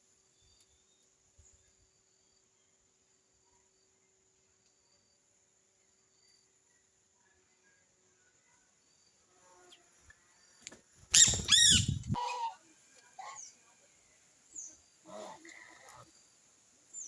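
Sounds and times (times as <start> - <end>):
bird wingbeats: 10.6 - 12.2
harsh bird calls: 11.1 - 12.6.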